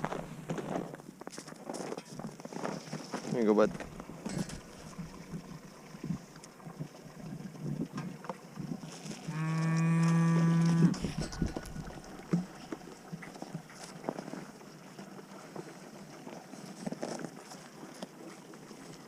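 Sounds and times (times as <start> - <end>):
cow mooing: 9.3 - 12.0.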